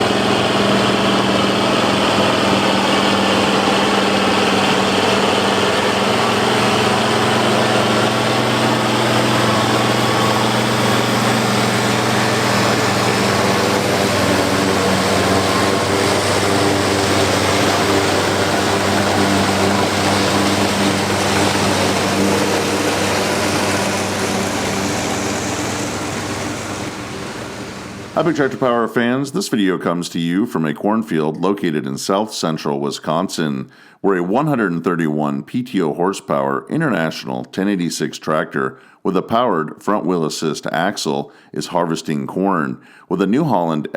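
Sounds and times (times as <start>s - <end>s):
harvester rushing noise: 0.0s - 29.0s
tractor diesel engine under load: 0.0s - 29.3s.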